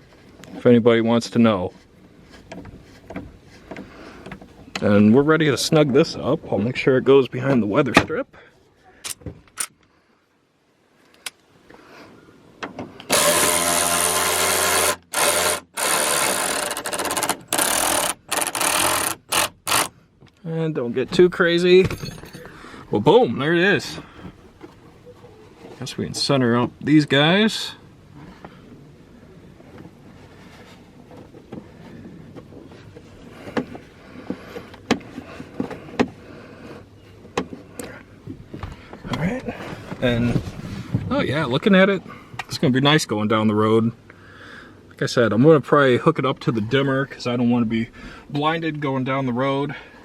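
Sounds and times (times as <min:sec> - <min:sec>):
sharp clicks and knocks: 0:12.6 - 0:20.4
power drill running: 0:13.1 - 0:19.9.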